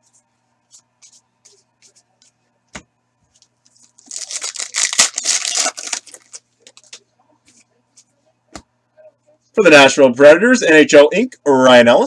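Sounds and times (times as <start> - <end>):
foil wrapper tearing and crinkling: 3.8 - 7.0.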